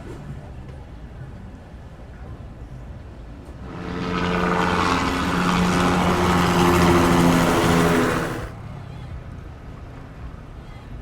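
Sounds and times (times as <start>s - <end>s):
motor engine droning: 3.6s - 8.6s.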